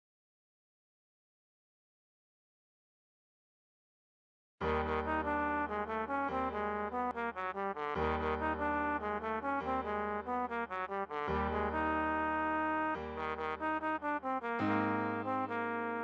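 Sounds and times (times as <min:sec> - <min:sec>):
trombone playing melody: 0:04.6 - 0:16.0.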